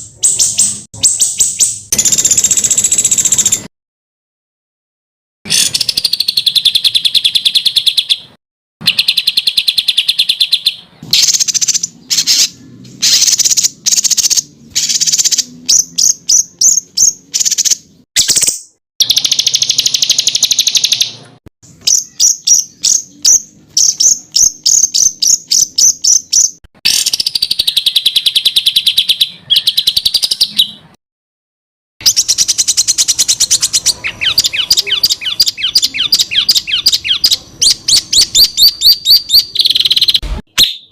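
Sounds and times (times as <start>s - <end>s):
songbird buzzy trills: 5.6s - 30.8s.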